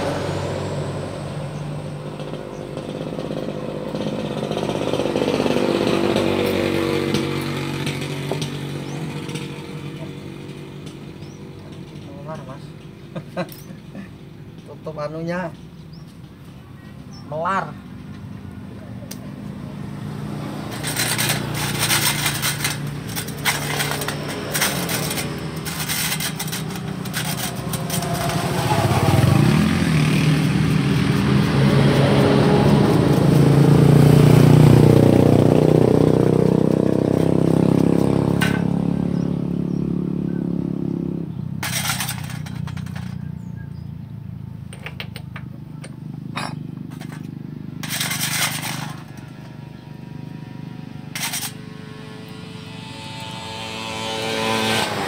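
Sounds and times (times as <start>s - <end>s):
vehicle engine running: 18.1s - 53.8s
clicks and knocks: 44.7s - 49.2s.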